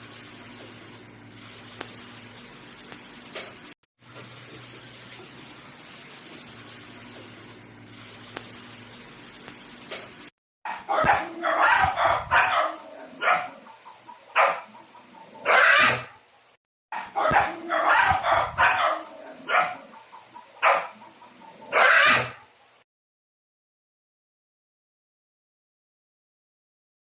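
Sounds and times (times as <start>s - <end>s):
dog barking: 10.7s - 14.8s, 15.4s - 16.2s, 17.0s - 20.0s, 20.6s - 21.1s, 21.7s - 22.5s.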